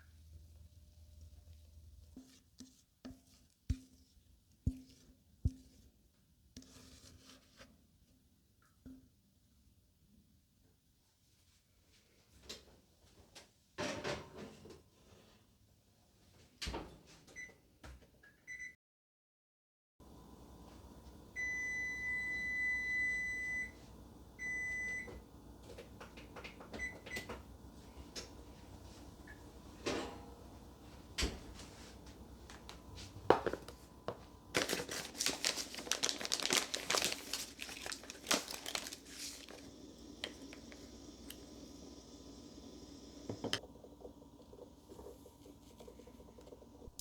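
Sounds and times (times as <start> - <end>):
electronic appliance beep: 18.5 - 18.8, 21.3 - 25.2, 26.7 - 27.3
hands clattering and rustling: 34.6 - 39.6.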